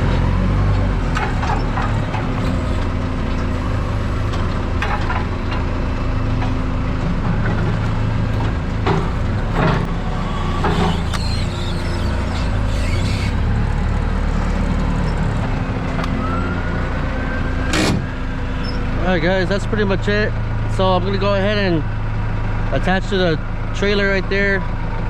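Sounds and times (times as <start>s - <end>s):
heavy truck engine idling: 0.0s - 16.0s.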